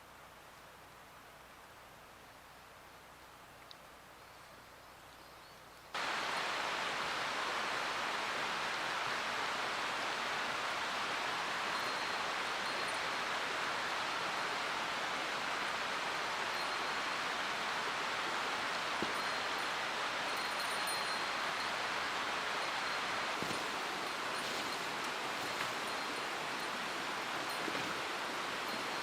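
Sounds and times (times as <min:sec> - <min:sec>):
mountain stream rushing: 0:06.0 - 0:29.0.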